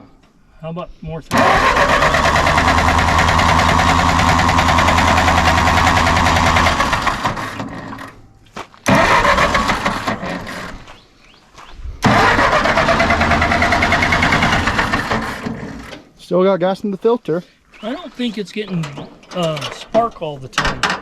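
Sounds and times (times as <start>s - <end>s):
starter cranking tractor engine: 1.3s - 10.9s, 12.0s - 16.1s.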